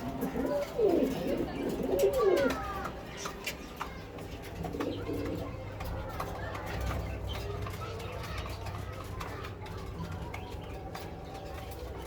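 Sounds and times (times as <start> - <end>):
pigeons cooing: 0.0 - 3.4, 4.5 - 5.6.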